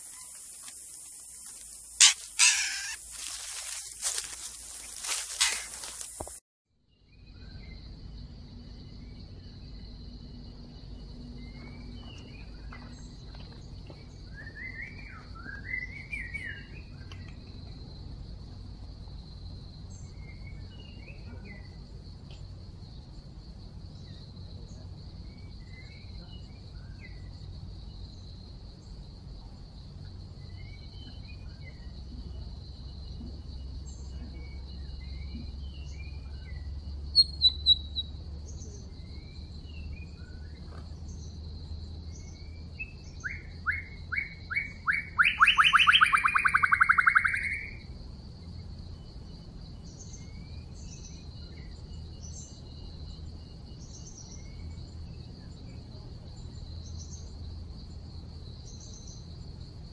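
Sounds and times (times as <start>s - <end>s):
birds chirping and whistling: 2.0s - 3.0s, 5.1s - 6.2s, 37.2s - 38.1s, 42.8s - 47.8s.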